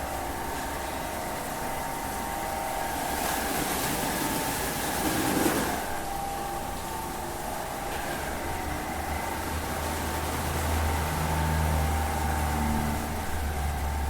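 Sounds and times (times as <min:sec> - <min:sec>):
vehicle humming: 0:07.8 - 0:14.0.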